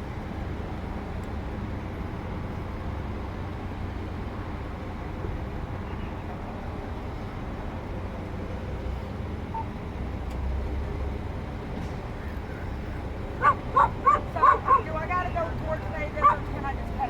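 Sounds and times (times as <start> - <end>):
low rumble of vehicle noise: 0.0 - 17.0
dog barking: 13.4 - 16.8.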